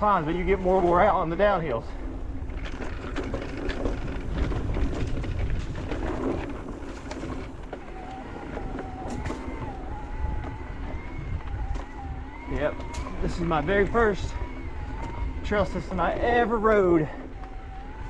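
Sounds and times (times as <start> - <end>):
bike tyres rumbling on dirt: 0.0 - 18.0
electric motor whine: 7.6 - 18.0.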